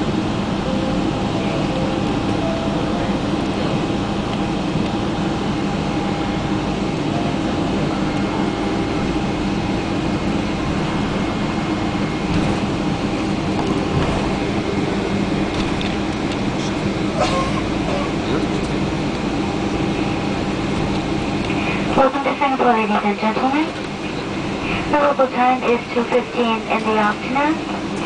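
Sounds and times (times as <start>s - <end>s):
airplane cabin engine drone: 0.0s - 28.0s.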